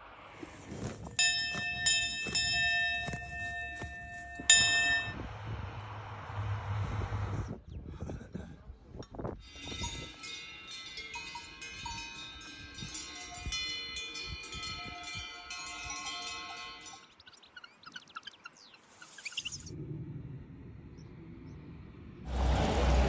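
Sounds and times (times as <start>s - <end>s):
small bells ringing: 1.2s - 5.2s, 9.4s - 17.3s
short chirping calls: 16.8s - 19.8s.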